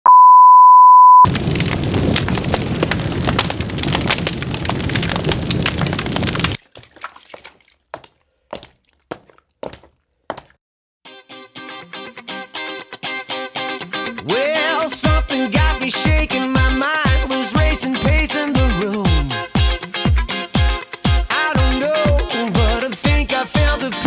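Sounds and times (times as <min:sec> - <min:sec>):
single-pitched beep: 0:00.0 - 0:01.3
dense crackling noise: 0:01.2 - 0:06.6.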